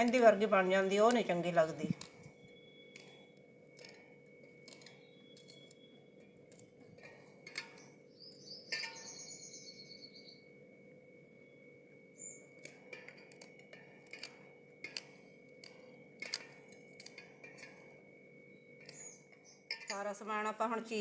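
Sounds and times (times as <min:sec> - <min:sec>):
bird chirping: 0:01.0 - 0:03.3, 0:04.6 - 0:06.6, 0:07.7 - 0:10.5, 0:11.4 - 0:12.7, 0:18.5 - 0:19.8.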